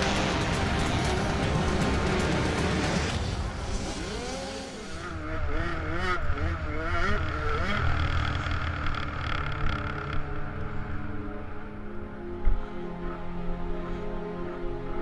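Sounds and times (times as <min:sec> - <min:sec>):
motocross bike engine revving: 0:00.0 - 0:09.4.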